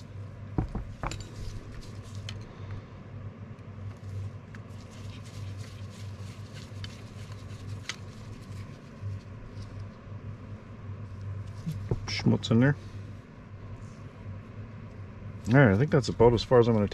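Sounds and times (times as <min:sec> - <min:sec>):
steady low hum: 0:00.0 - 0:16.9
metal parts being handled: 0:00.6 - 0:02.5.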